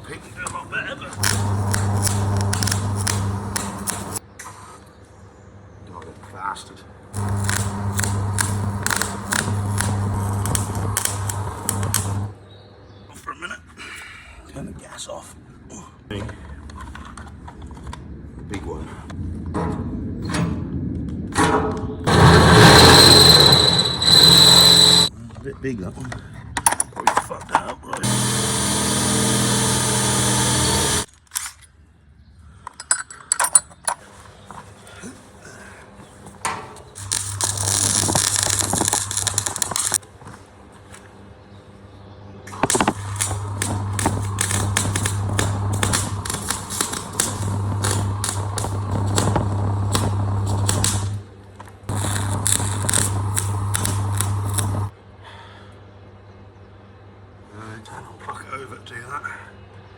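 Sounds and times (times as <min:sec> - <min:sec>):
electrical hum: 0:01.0 - 0:04.2, 0:07.2 - 0:12.4, 0:22.1 - 0:25.1, 0:28.0 - 0:31.1, 0:36.0 - 0:40.0, 0:42.4 - 0:54.9
welding arc crackling: 0:01.1 - 0:04.2, 0:07.2 - 0:12.4, 0:22.1 - 0:25.1, 0:28.0 - 0:31.1, 0:36.8 - 0:40.0, 0:42.5 - 0:51.3, 0:51.9 - 0:54.9
loud hiss: 0:01.2 - 0:04.2, 0:07.2 - 0:12.4, 0:22.1 - 0:25.1, 0:28.0 - 0:31.1, 0:37.0 - 0:40.0, 0:42.5 - 0:51.2, 0:51.9 - 0:54.9.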